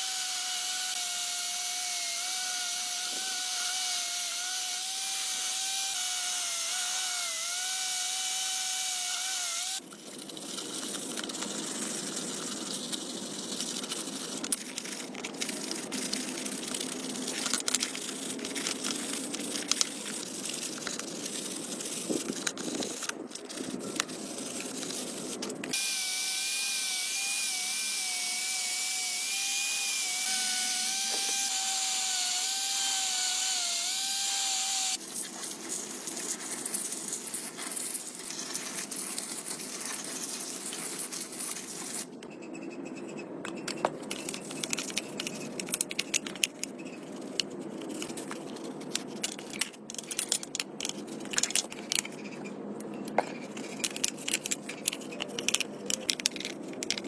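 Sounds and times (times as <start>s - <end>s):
power tool motor whining: 25.7s - 35.0s.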